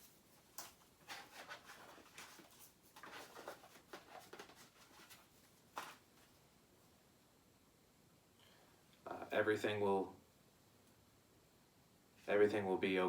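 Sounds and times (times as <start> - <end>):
stickers rustling: 0.0 - 6.1.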